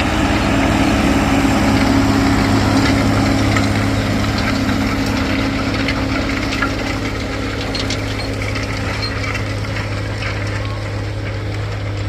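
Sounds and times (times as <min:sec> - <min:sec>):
tractor diesel engine running: 0:00.0 - 0:12.0
rattling and clinking of implements: 0:02.6 - 0:12.0.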